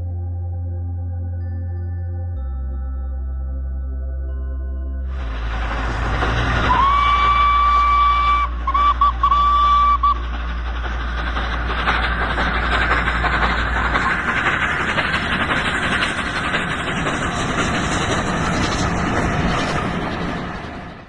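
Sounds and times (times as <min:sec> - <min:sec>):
low hum: 0:00.0 - 0:21.0
train rushing: 0:05.1 - 0:21.0.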